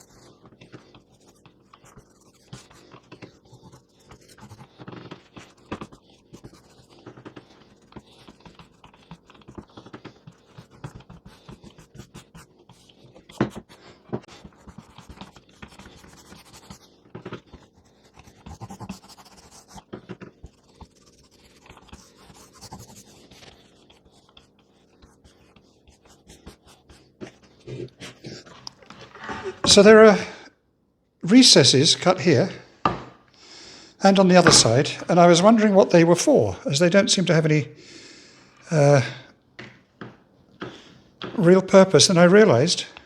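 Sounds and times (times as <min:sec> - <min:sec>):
scratching and rustling on wood: 0:26.0 - 0:29.8
knocks on wooden boards: 0:32.8 - 0:33.2.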